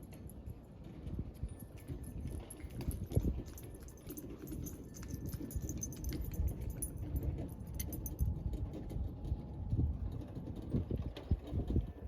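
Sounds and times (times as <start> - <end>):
metal parts clinking: 1.4 - 8.3.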